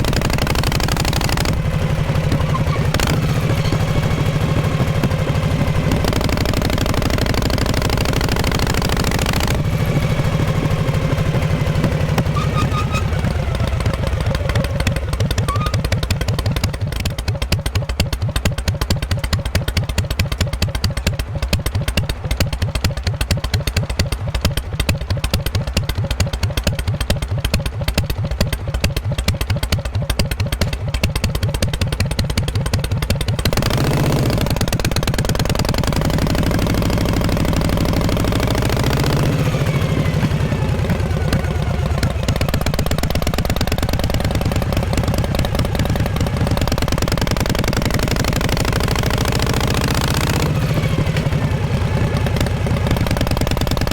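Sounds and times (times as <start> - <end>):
motorcycle exhaust beats: 0.0 - 53.9.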